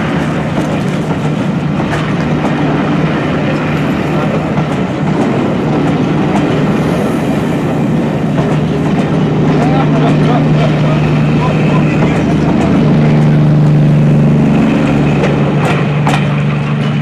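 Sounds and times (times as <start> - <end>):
train rumbling: 0.0 - 17.0
wheels clattering over rail joints: 0.0 - 17.0.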